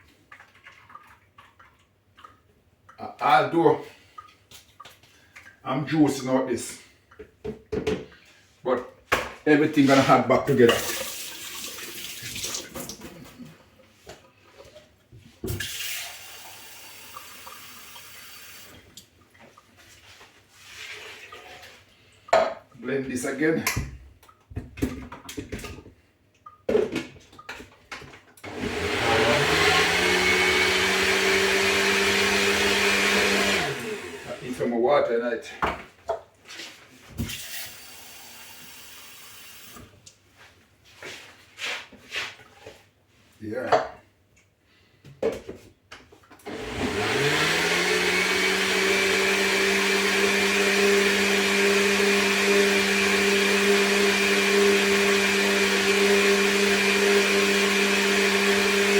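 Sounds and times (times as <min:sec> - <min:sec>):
water pouring: 0:00.1 - 0:02.4, 0:10.6 - 0:13.1, 0:15.5 - 0:22.1
kitchen knocks and rustles: 0:07.2 - 0:10.1, 0:45.0 - 0:46.4
water running from tap: 0:10.7 - 0:13.0, 0:15.5 - 0:18.9, 0:37.3 - 0:39.9.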